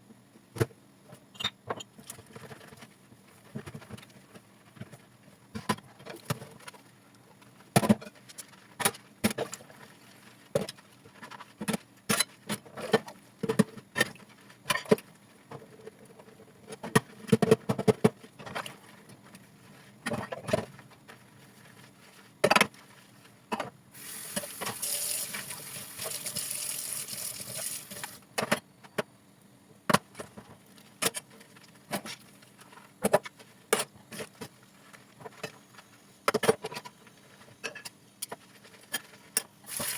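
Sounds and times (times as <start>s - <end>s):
tap running: 24.0s - 28.2s, 39.7s - 39.9s.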